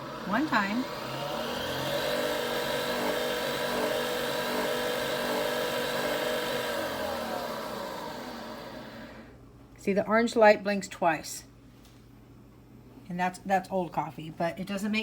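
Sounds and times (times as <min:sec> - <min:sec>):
coffee machine motor whirring: 0:00.0 - 0:09.4.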